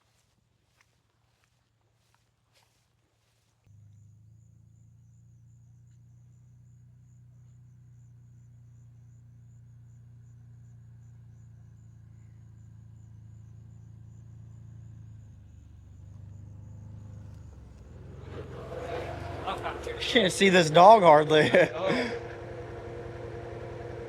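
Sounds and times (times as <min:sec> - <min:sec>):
insects trilling: 0:03.7 - 0:24.0
low mechanical hum: 0:07.1 - 0:24.0.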